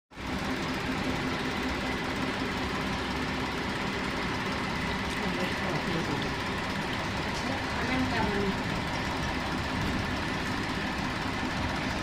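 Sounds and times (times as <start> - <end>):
engine idling: 0.1 - 12.0.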